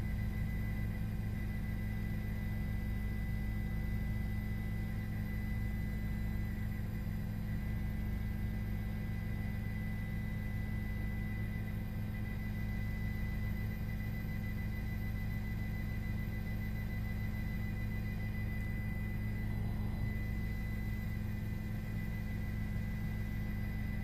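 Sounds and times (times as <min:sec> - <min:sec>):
faint high whine: 0:00.0 - 0:24.0
helicopter drone: 0:00.0 - 0:24.0.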